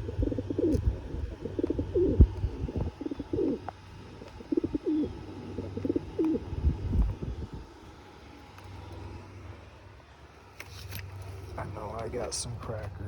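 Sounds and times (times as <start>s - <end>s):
pigeon cooing: 0.0s - 7.8s.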